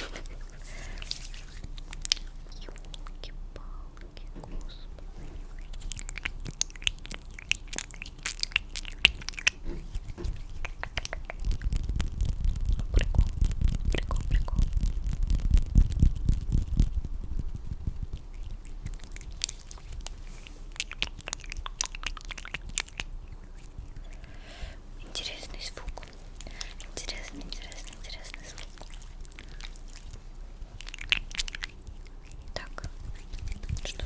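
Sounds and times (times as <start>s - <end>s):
wet mouth clicks and smacks: 0.2s - 24.4s, 25.0s - 34.0s.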